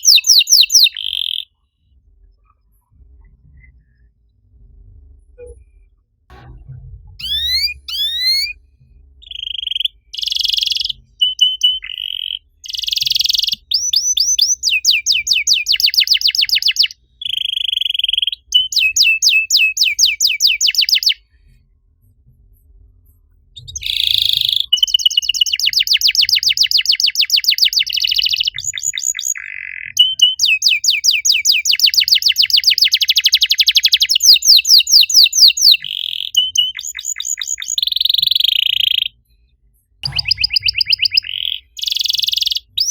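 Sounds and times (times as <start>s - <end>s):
canary singing trills: 0.0s - 1.6s, 7.2s - 8.6s, 9.2s - 21.2s, 23.6s - 39.2s, 40.0s - 42.9s.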